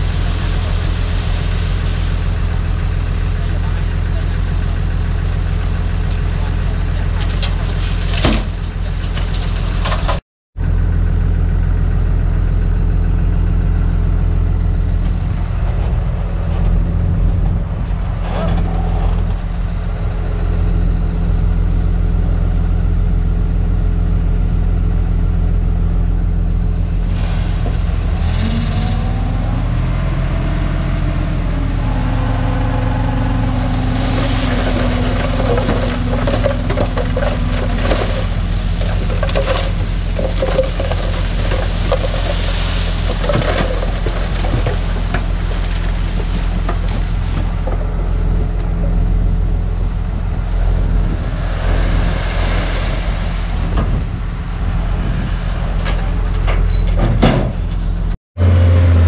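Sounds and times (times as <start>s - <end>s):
diesel machinery engine droning: 0.0s - 59.0s
sharp crackling and clattering: 31.8s - 48.0s.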